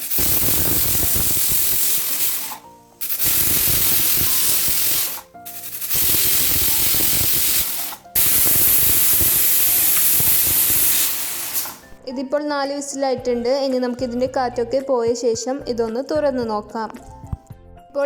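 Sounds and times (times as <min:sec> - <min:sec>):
pressure cooker whistling: 0:00.0 - 0:12.0.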